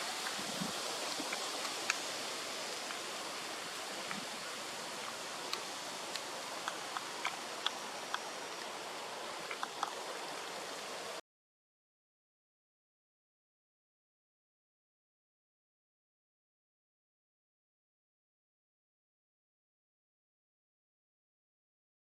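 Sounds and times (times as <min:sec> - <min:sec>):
light rain hissing: 0:00.0 - 0:11.2
raindrops ticking on surfaces: 0:00.0 - 0:11.2.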